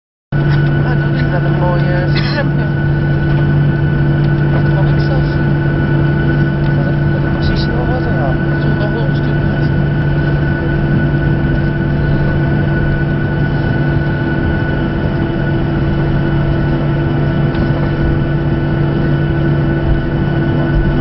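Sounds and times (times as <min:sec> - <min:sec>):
jet engines droning: 0:00.4 - 0:21.0.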